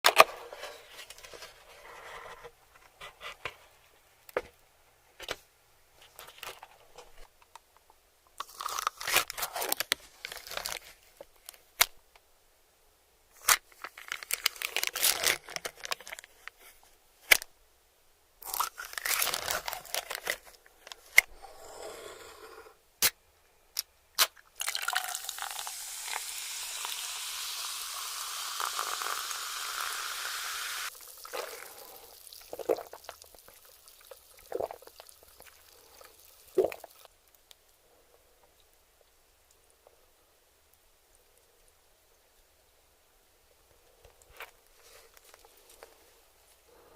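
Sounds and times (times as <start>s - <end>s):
crunching bites of crispy food: 8.4s - 10.8s, 18.4s - 20.4s
steady hiss: 24.9s - 32.5s.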